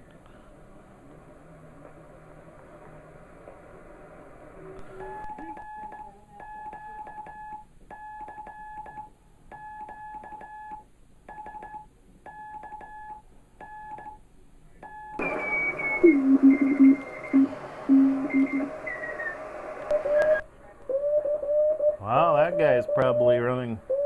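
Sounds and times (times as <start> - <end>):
radio band hiss: 0.1 - 6.3, 15.2 - 21.0
wavering lower morse signal: 4.0 - 7.6, 15.1 - 24.0
morse code beeps: 5.0 - 14.2, 14.8 - 20.4.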